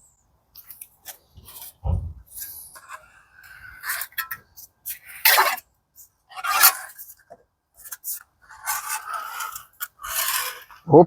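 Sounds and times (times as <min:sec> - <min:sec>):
marking tool scratching metal: 0:07.8 - 0:10.8.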